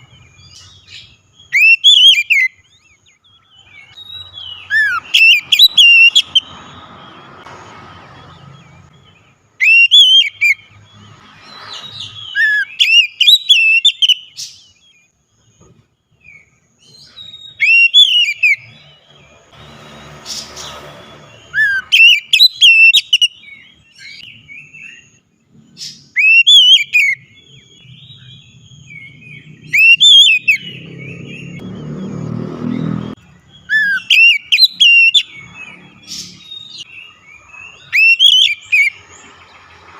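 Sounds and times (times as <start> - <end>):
bird singing whistled phrases: 0.0 - 6.8, 9.6 - 10.7, 11.8 - 14.9, 16.2 - 18.8, 21.4 - 25.2, 26.0 - 31.6, 33.5 - 35.6, 36.4 - 39.0.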